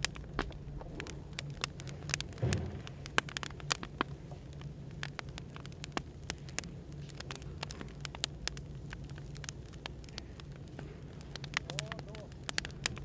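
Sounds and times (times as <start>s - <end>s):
cafe background hum: 0.0s - 13.0s
wood fire crackling: 0.0s - 13.0s
dull thump: 1.9s - 4.2s.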